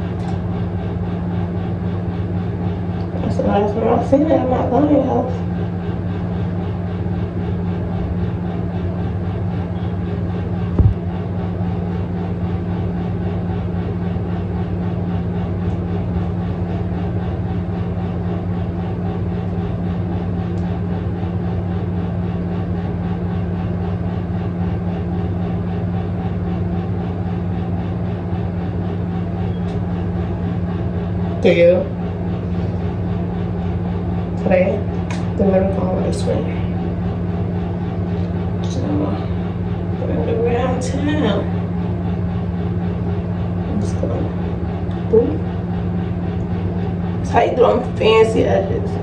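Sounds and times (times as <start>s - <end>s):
low mechanical hum: 0.0s - 49.0s
short knock: 10.8s - 11.0s.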